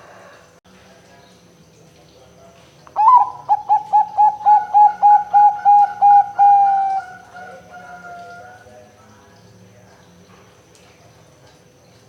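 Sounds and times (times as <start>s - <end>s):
dove cooing: 3.0s - 8.7s.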